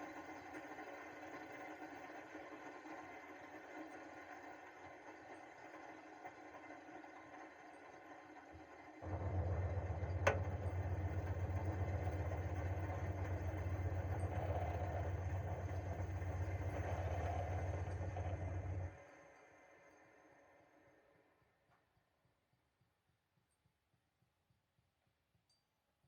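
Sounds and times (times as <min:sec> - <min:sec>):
air conditioner unit humming: 0:09.0 - 0:18.8.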